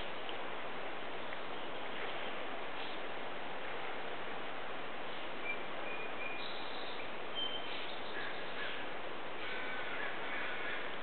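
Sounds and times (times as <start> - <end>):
steady background hiss: 0.0 - 11.0
wild birds calling: 5.5 - 11.0.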